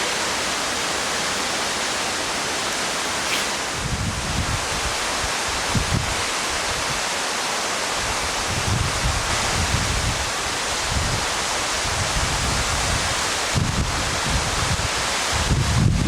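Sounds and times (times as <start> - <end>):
waterfall rushing: 0.0 - 16.0
wind buffeting microphone: 3.5 - 7.0, 8.0 - 16.0.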